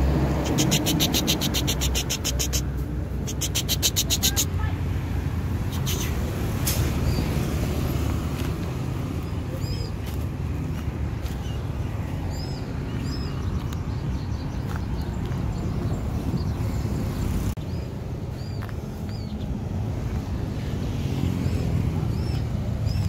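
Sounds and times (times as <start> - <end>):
high chirping bird calls: 0.0 - 4.7, 5.6 - 7.6, 11.3 - 19.6.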